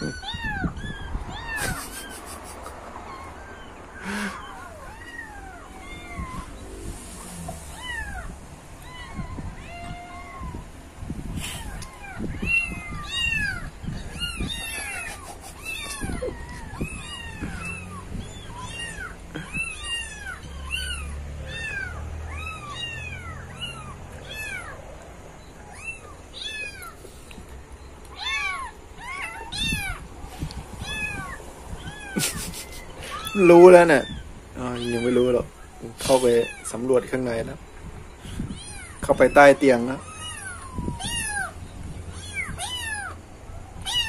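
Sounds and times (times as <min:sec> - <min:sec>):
kittens mewing: 0:00.0 - 0:44.0.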